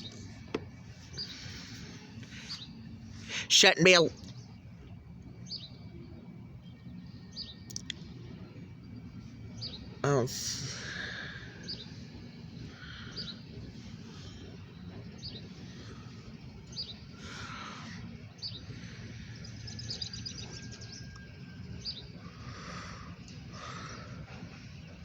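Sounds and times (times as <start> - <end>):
songbirds chirping: 0.0 - 25.0
steady low rumble: 0.0 - 25.0
bird trill: 10.7 - 25.0.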